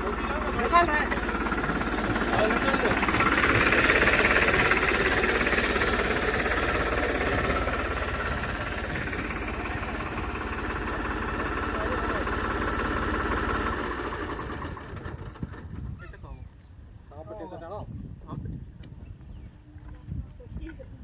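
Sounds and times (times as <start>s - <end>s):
diesel tractor engine knocking: 0.0s - 15.9s.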